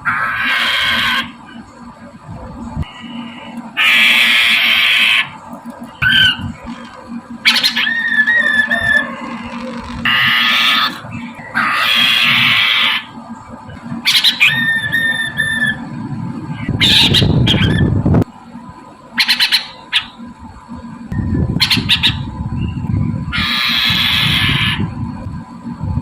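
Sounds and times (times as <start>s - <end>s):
bird harsh squawking calls: 0.0s - 1.4s, 3.0s - 5.3s, 6.0s - 13.2s, 14.0s - 15.8s, 16.6s - 17.9s, 19.2s - 20.2s, 21.6s - 22.3s, 23.3s - 24.9s
low rumble of noise: 0.0s - 26.0s.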